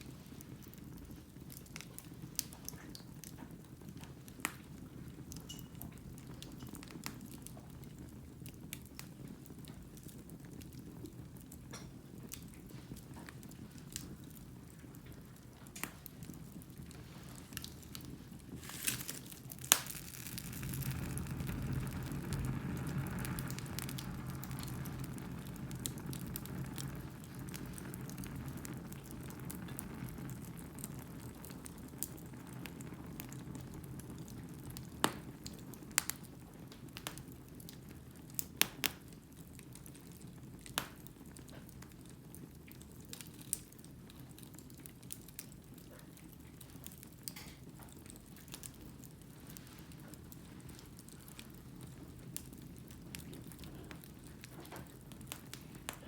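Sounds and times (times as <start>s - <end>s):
logs crackling and popping: 0.0s - 56.0s
fire flame rushing: 15.8s - 36.2s.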